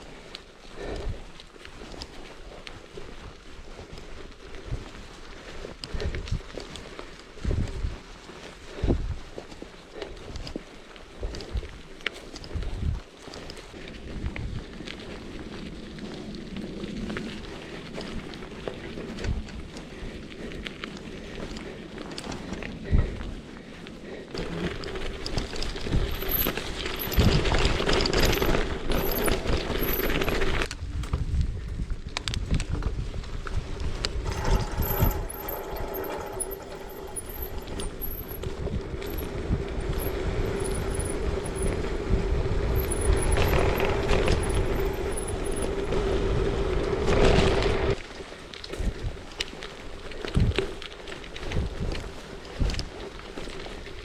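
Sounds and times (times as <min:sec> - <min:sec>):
wind buffeting microphone: 0:07.3 - 0:09.4, 0:12.5 - 0:13.1, 0:13.8 - 0:48.0.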